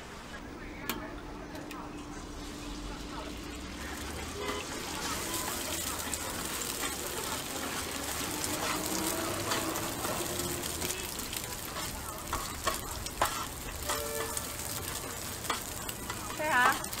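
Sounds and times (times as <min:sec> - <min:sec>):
eggs sizzling on griddle: 0:01.4 - 0:17.0
metal spatula scraping griddle: 0:03.8 - 0:17.0.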